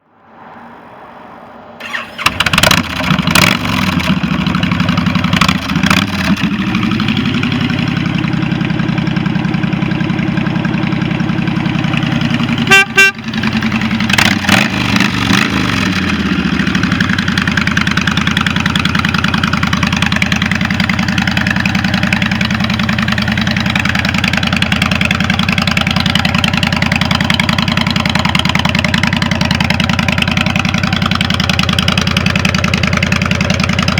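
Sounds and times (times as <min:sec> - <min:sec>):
motorcycle engine blipping and idling: 0:01.8 - 0:33.9
short horn beep: 0:12.6 - 0:13.4.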